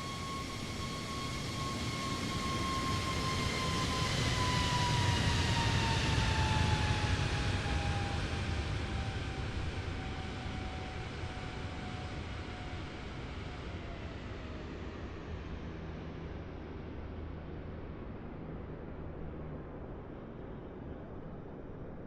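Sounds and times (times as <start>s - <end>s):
jet airliner engine rumble: 0.0s - 22.0s
jet engine whine: 0.0s - 22.0s.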